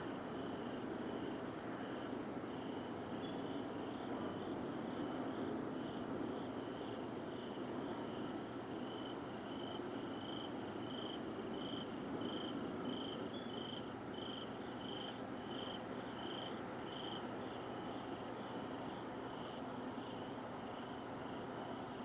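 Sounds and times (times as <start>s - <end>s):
insect chirping: 8.8s - 22.0s.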